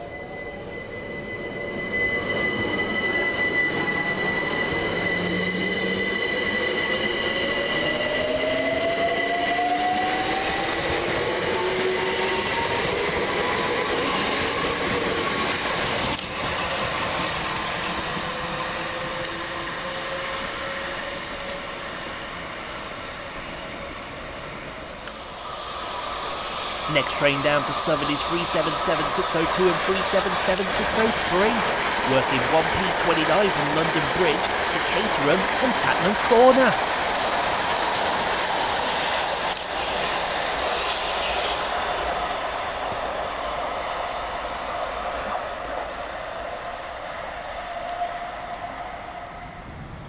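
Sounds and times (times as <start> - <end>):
rail noise: 0.0 - 50.0
traction motors whining: 25.0 - 36.8.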